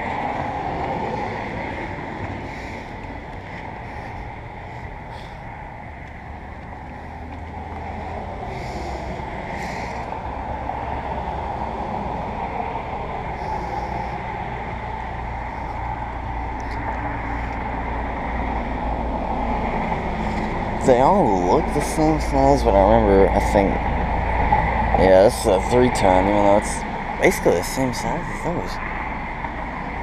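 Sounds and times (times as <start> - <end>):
rushing wind-like noise: 0.0 - 30.0.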